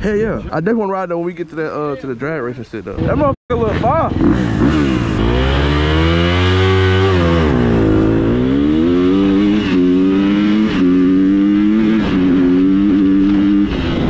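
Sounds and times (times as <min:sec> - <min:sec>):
motorcycle engine accelerating: 0:03.6 - 0:14.0.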